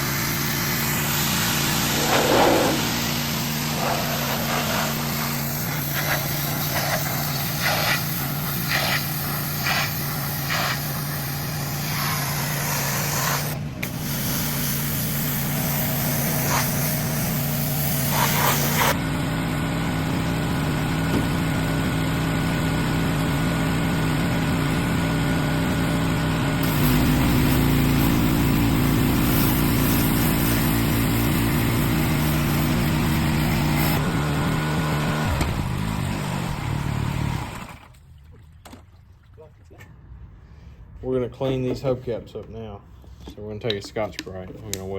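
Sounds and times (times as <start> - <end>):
hiss: 0.0 - 19.0, 26.6 - 34.0
engine running: 0.0 - 38.0.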